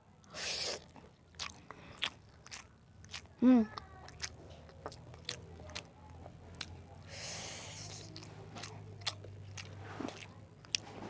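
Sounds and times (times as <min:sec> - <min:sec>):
wet chewing mouth sounds: 0:00.2 - 0:11.0
breath out through nose: 0:00.3 - 0:00.8, 0:07.1 - 0:08.0.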